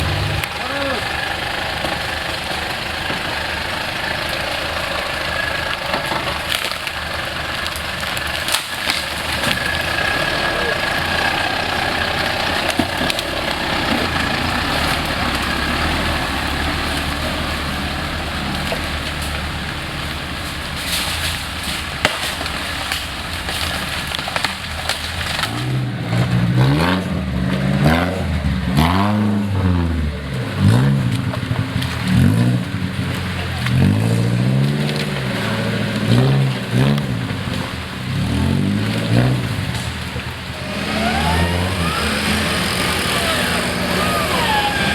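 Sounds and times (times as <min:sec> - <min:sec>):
off-road vehicle engine revving: 0:00.0 - 0:44.9.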